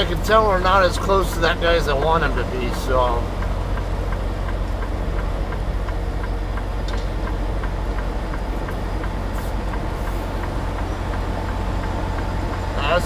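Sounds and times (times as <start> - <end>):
diesel truck engine running: 0.0 - 13.0
light ticking: 0.0 - 13.0.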